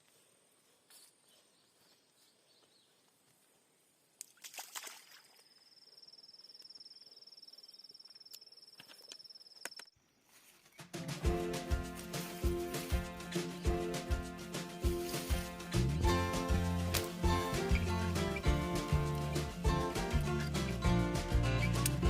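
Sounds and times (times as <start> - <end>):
faint outdoor ambience: 0.0 - 22.0
music: 10.8 - 22.0.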